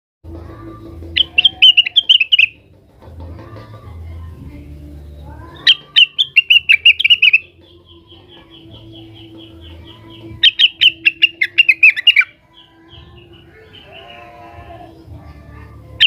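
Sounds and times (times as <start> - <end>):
bird rapid high chirping: 1.1 - 2.7, 5.4 - 14.9.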